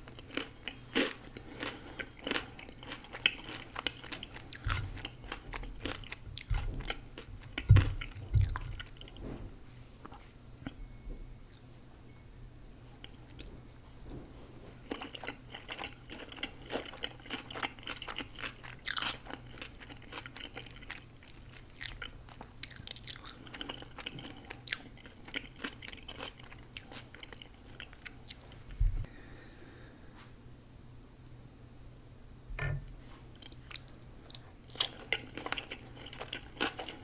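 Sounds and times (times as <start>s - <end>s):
person chewing crunchy food: 0.0s - 9.2s, 14.8s - 28.7s, 33.3s - 37.0s.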